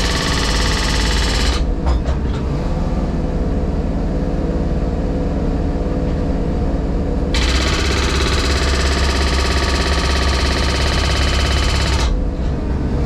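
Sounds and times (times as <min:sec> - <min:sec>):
harsh noise of road attachment: 0:00.0 - 0:02.5, 0:07.1 - 0:13.0
diesel engine running: 0:00.0 - 0:13.0.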